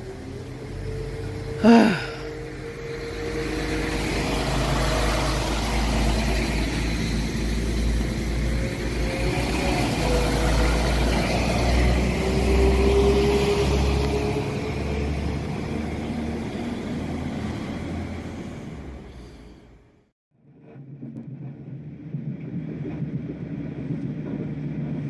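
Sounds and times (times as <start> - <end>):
passenger train rumbling: 0.0 - 19.9.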